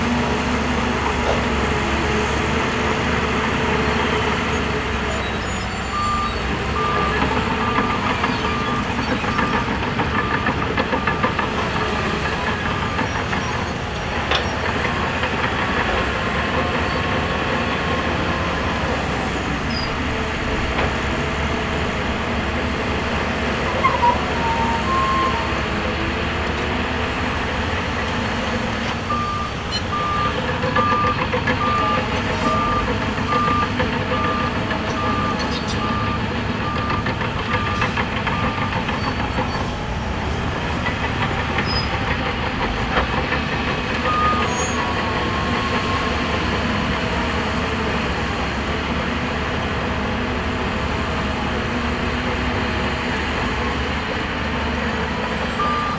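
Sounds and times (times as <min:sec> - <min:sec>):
heavy machinery running: 0:00.0 - 0:55.9
reversing alarm beeping: 0:05.1 - 0:13.7, 0:21.7 - 0:25.9, 0:29.0 - 0:39.7, 0:41.2 - 0:46.9, 0:55.5 - 0:55.9.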